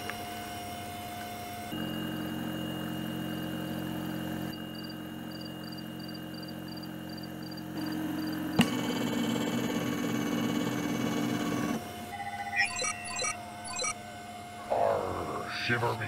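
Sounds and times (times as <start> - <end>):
mechanical hum with high whine: 0.0 - 16.0
faint high chirps: 12.1 - 14.0.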